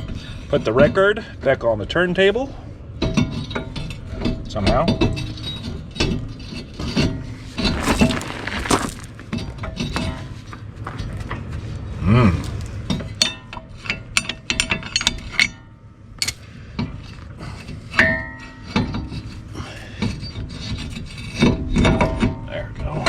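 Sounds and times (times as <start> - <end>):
metal ringing clank: 16.2 - 16.4
steel brake parts clinking: 16.2 - 16.5.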